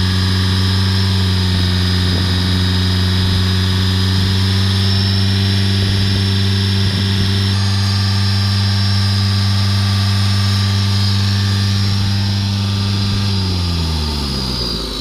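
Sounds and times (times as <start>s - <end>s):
high whine: 0.0s - 15.0s.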